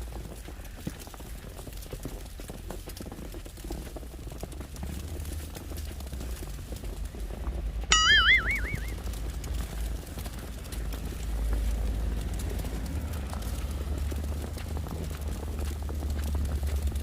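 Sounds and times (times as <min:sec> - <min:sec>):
high warbling whistle-like call: 0:07.9 - 0:09.0.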